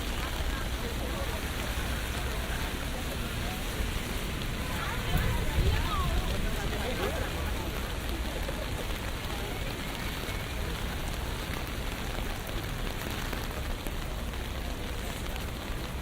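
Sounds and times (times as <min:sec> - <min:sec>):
rain on a street: 0:00.0 - 0:16.0.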